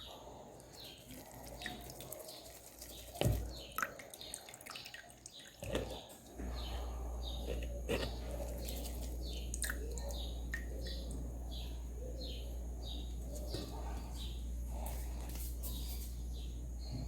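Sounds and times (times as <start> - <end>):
bird chirping: 0.0 - 14.9
steady low hum: 5.6 - 17.0.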